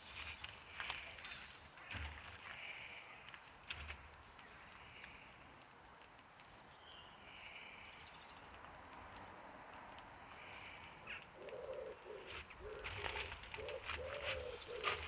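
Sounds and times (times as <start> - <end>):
distant birds calling: 10.4 - 15.0.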